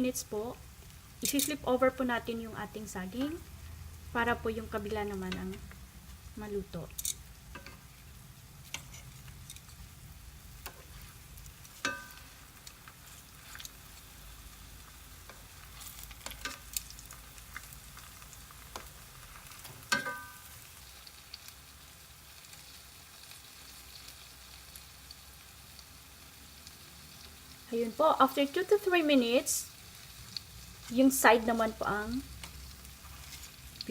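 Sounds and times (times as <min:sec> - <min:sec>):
food sizzling in hot oil: 0:00.0 - 0:33.9
metal utensil clinking on pan: 0:06.9 - 0:07.8, 0:11.8 - 0:12.3, 0:19.8 - 0:20.5.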